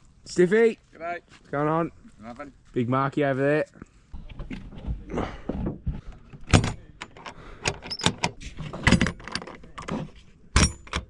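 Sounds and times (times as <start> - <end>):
camp gear clinking and clattering: 4.1 - 11.0.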